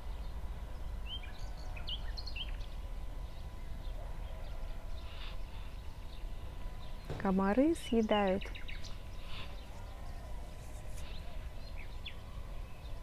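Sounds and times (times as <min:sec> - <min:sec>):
birds chirping: 0:00.0 - 0:13.0
low outdoor rumble: 0:00.0 - 0:13.0.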